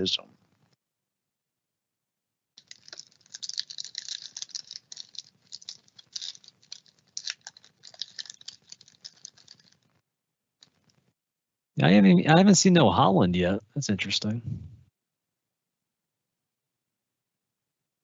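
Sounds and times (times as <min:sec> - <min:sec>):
cards flipping clicks and rustles: 0:02.6 - 0:09.8.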